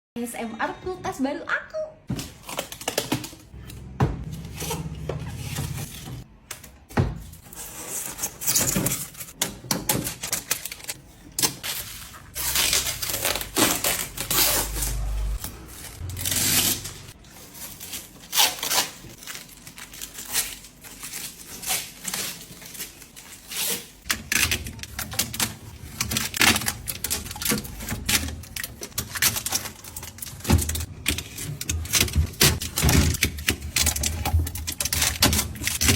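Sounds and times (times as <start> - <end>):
plastic parts clicking and knocking: 24.1 - 35.9.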